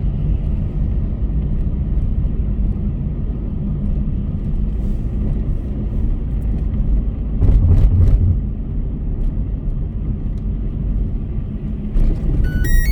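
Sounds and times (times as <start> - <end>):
car driving on road: 0.0 - 12.9.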